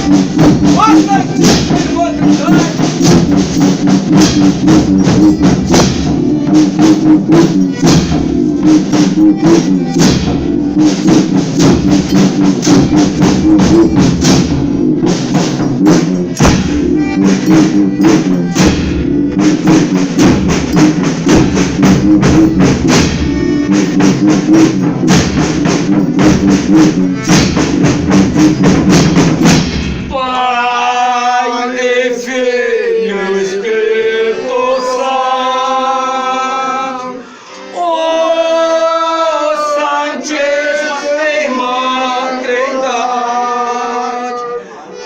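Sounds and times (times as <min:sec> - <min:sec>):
jingling percussion: 0:00.0 - 0:30.2
held pitched notes: 0:00.0 - 0:30.3
rapid drum beats: 0:00.0 - 0:30.6.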